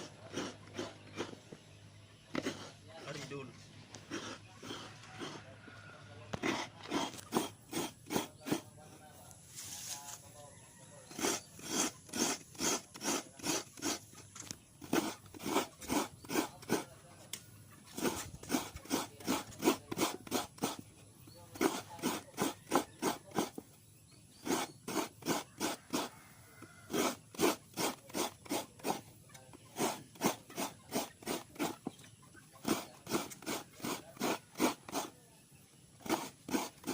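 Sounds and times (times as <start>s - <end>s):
coconut grating rasps: 0.0s - 1.6s, 2.3s - 5.6s, 6.3s - 8.9s, 11.0s - 17.0s, 17.8s - 35.2s, 35.9s - 36.9s.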